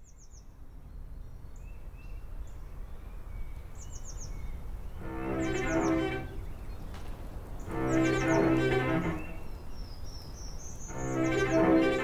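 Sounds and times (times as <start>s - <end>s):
birds chirping: 3.1s - 12.0s.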